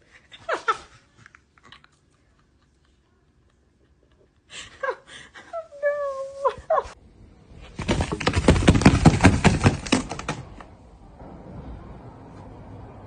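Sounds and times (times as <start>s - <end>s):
rapid clatter of knocks: 7.8s - 10.7s.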